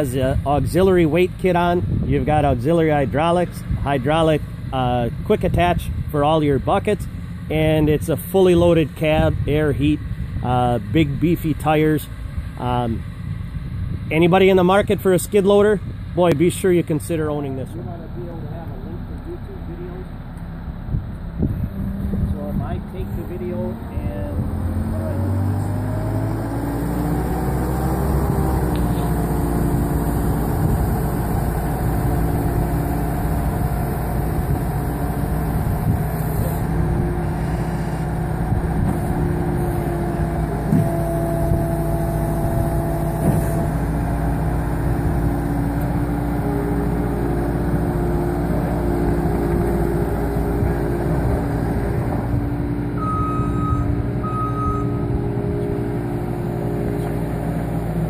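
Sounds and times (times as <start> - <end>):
diesel engine running: 0.0 - 58.0
back-up alarm beeps: 53.0 - 55.1.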